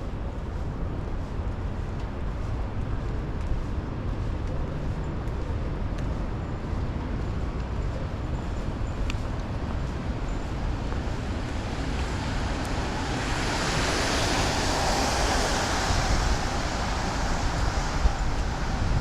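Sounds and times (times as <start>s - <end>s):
wind buffeting microphone: 0.0s - 19.0s
tyres hissing on wet road: 11.5s - 19.0s.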